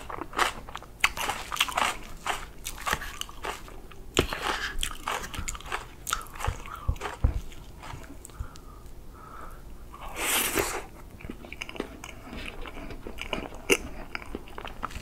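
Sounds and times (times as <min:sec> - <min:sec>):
moist chewing mouth sounds: 0:00.4 - 0:08.6.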